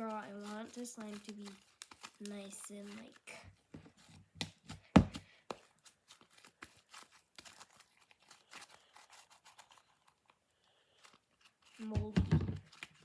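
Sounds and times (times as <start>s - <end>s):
slime being kneaded: 0.0s - 10.1s, 11.0s - 13.0s
thump: 11.9s - 12.6s.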